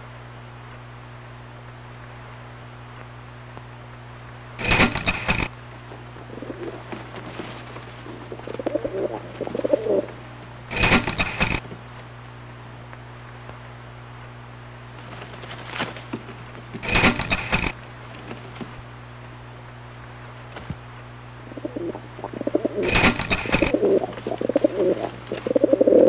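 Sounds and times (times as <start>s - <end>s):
steady low hum: 0.0s - 26.0s
pigeon cooing: 6.2s - 11.6s, 21.4s - 26.0s.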